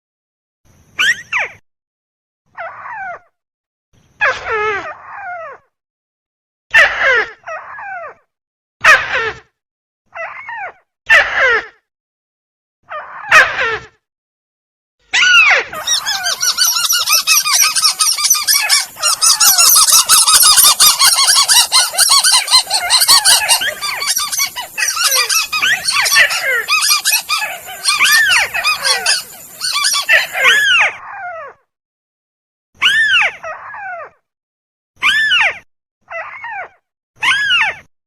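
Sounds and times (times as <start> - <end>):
crake calls chorus: 15.8 - 30.6.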